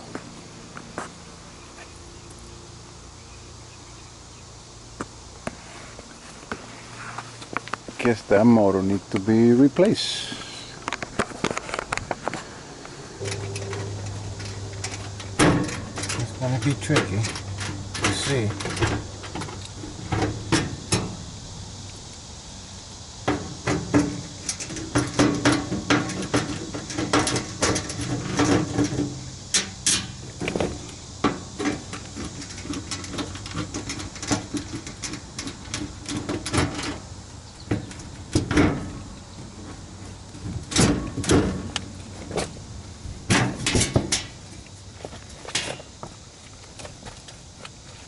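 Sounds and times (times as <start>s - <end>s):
low hum: 12.5s - 22.2s.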